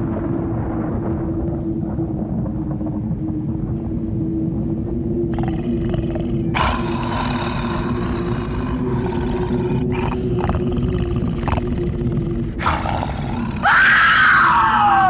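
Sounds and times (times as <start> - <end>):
low droning rumble: 0.0 - 15.0
harsh drawn-out roar: 5.4 - 15.0.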